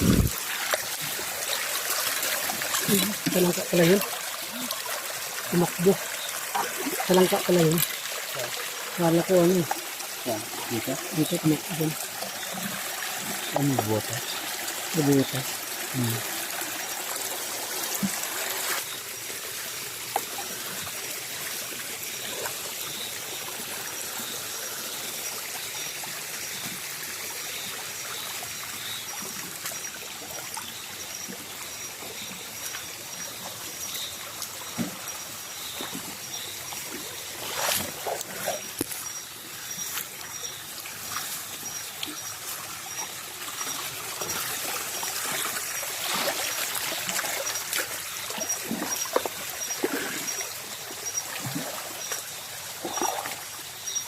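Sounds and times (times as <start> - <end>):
stream water trickling: 0.0 - 54.0
water splashes: 0.0 - 54.0.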